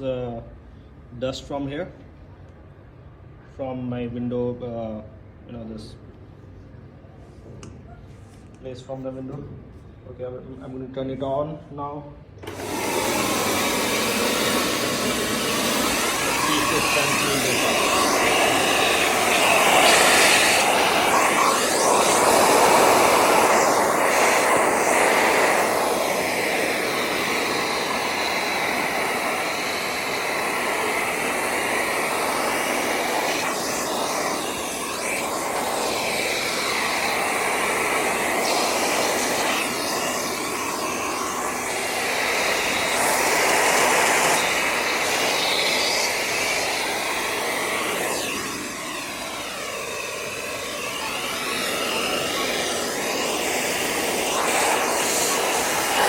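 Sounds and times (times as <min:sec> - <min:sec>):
vacuum cleaner sucking dust: 0:12.4 - 0:56.0.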